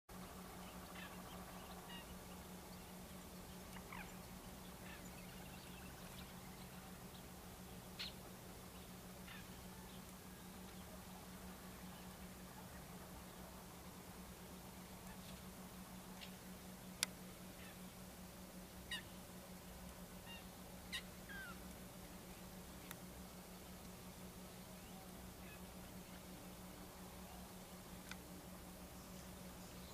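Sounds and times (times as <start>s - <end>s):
low hum and hiss: 0.1s - 29.9s
faint short bird calls: 0.6s - 2.4s, 3.7s - 6.4s, 8.0s - 8.2s, 9.2s - 10.0s, 18.8s - 19.2s, 20.2s - 21.6s.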